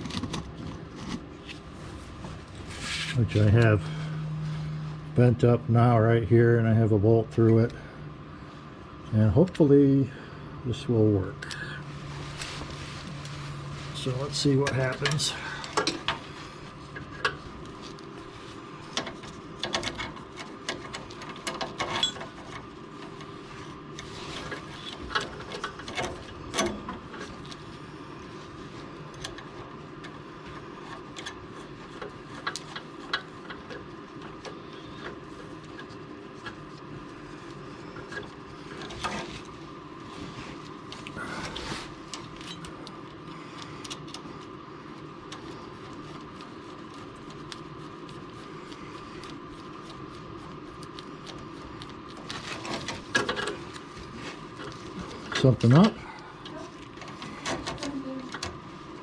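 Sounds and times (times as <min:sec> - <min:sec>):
steady background hum: 0:00.0 - 0:59.0.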